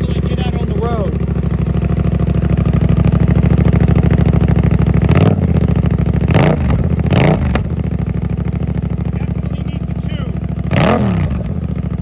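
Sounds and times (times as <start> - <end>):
motorcycle engine idling loudly: 0.0 - 12.0
engine revs blipped: 6.3 - 7.7, 10.0 - 11.7.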